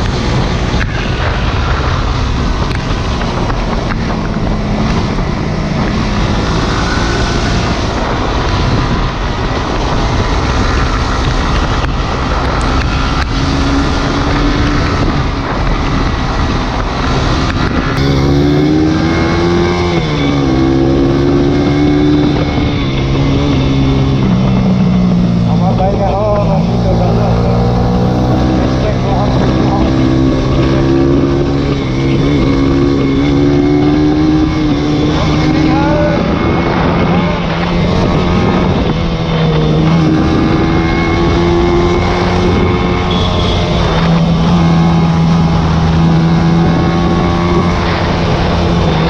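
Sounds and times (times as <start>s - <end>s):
motorcycle engine running: 0.0s - 49.0s
wind on microphone: 0.0s - 49.0s.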